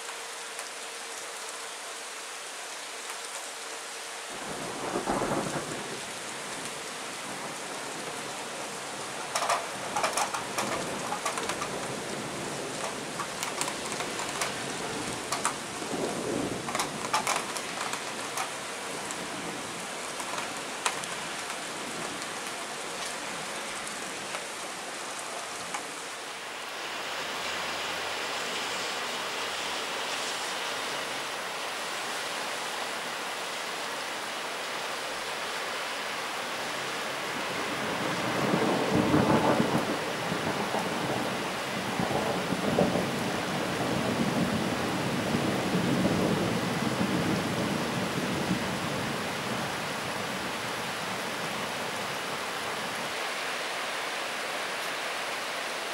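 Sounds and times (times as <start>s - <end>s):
steady rain hissing: 0.0s - 55.9s
thunder rumbling: 4.4s - 24.4s, 37.6s - 49.1s.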